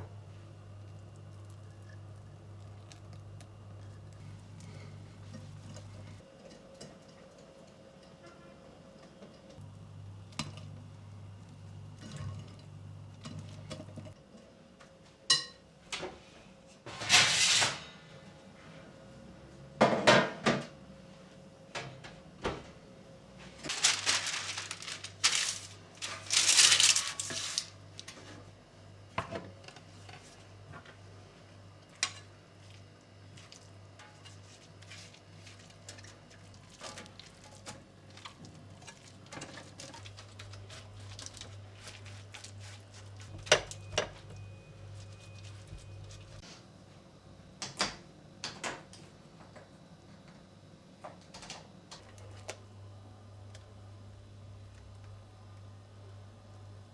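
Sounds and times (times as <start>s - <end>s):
low steady hum: 22.9s - 28.1s, 39.8s - 46.4s
scraping and rattling: 23.7s - 27.7s.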